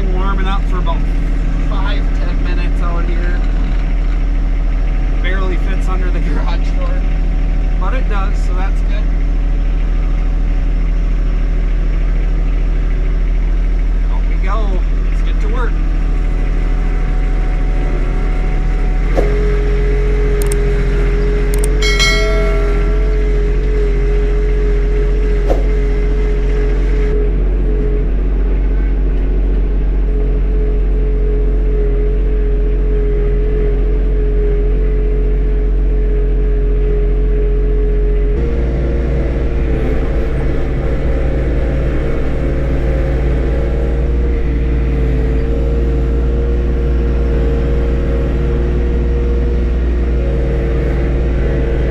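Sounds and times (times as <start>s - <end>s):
steady whine: 0.0s - 51.9s
tractor diesel engine running: 0.0s - 51.9s
sharp clicks or clunks: 20.4s - 20.7s, 21.5s - 23.2s.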